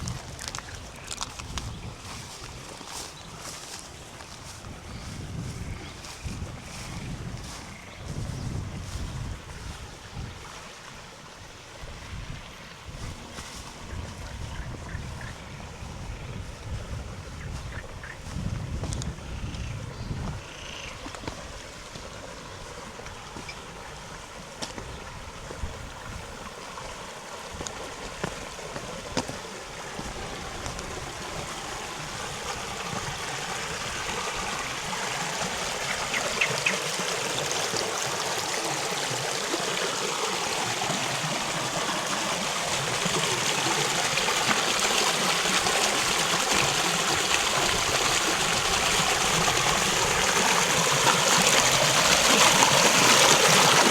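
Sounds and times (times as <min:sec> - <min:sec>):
river water running over stones: 0:00.0 - 0:53.9.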